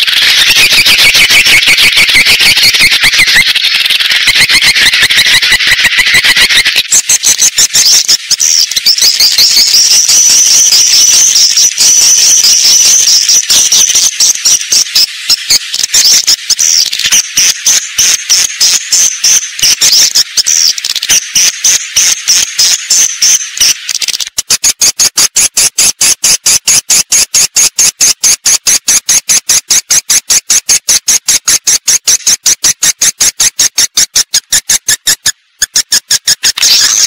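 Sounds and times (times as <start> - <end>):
swiftlet chirping: 0.0 - 37.0.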